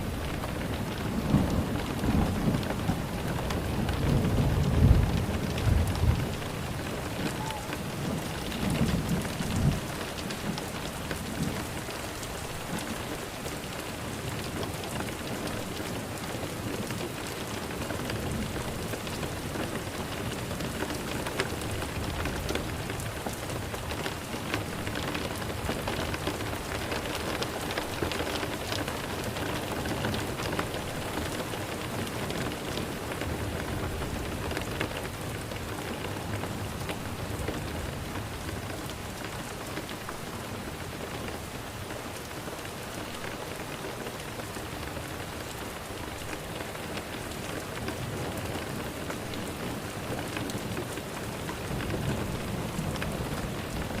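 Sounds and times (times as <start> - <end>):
rain hiss: 0.0 - 54.0
raindrops ticking on hard surface: 0.0 - 54.0.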